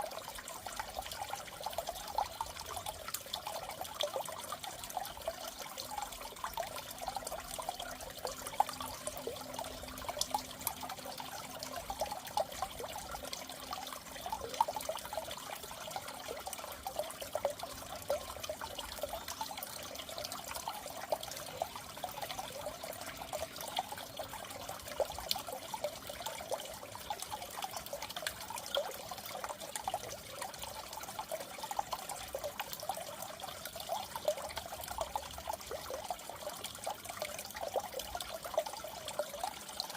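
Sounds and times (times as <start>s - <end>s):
water bubbling in fish tank: 0.0s - 39.9s.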